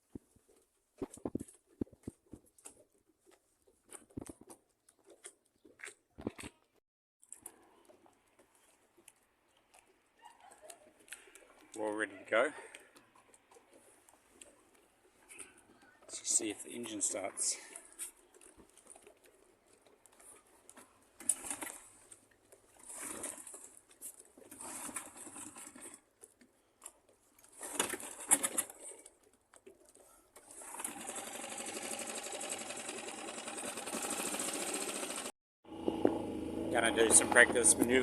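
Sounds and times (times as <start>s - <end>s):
boat engine starting and running: 30.6s - 38.0s.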